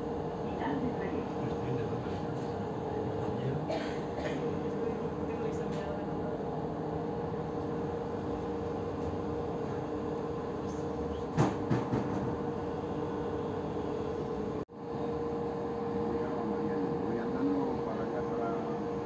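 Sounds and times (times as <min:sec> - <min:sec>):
train rumbling hum: 0:00.0 - 0:19.0
clatter of knocks: 0:11.3 - 0:12.4.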